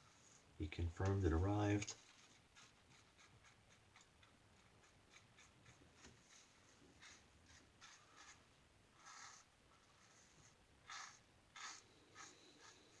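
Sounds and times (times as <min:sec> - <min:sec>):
razor scraping whiskers: 0:09.0 - 0:13.0.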